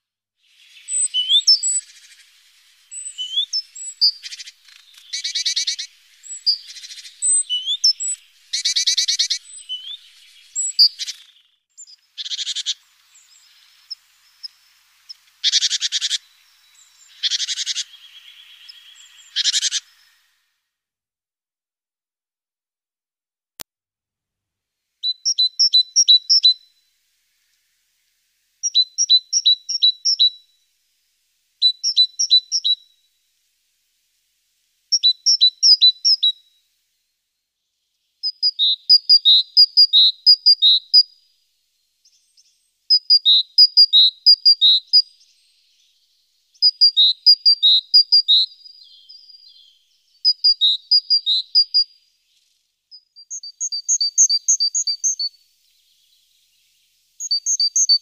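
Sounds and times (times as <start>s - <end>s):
songbird chirping: 0.4s - 20.6s, 25.0s - 58.0s.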